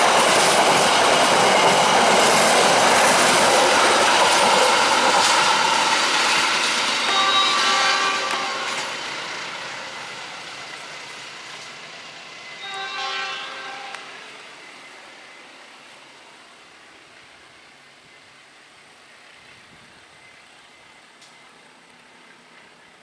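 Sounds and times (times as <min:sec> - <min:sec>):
train rumble: 0:00.0 - 0:23.0
train horn blast: 0:07.1 - 0:09.0, 0:12.6 - 0:14.4.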